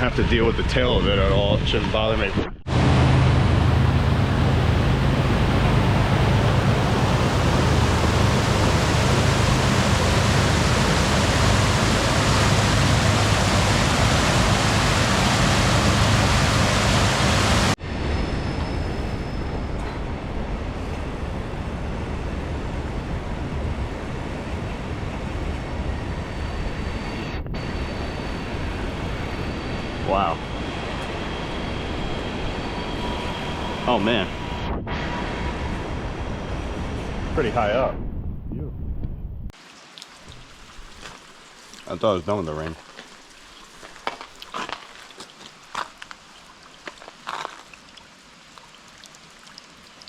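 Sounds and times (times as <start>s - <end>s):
wind rush on microphone: 0.0s - 39.5s.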